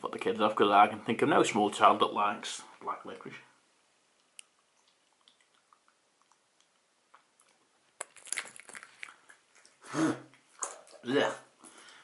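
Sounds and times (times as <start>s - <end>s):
faint chewing: 4.1s - 12.0s
wet mouth clicks: 4.2s - 11.0s.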